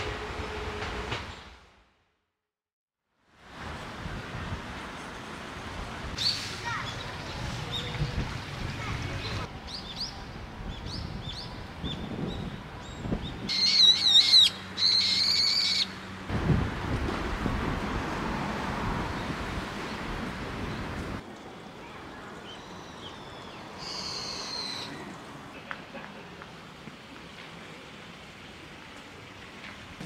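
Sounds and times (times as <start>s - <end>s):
shrill wavering bird calls: 12.8s - 16.0s, 22.5s - 25.0s.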